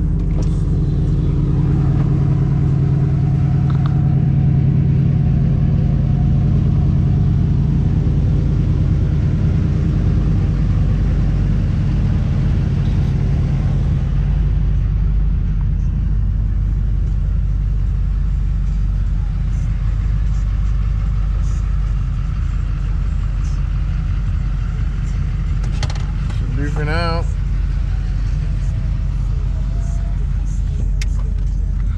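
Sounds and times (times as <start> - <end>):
car engine droning: 0.0 - 31.9.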